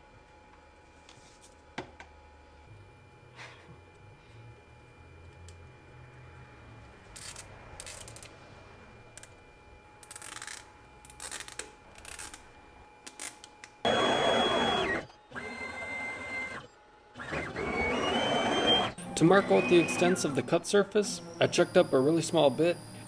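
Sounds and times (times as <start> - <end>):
stepper motor whine: 13.8 - 23.0.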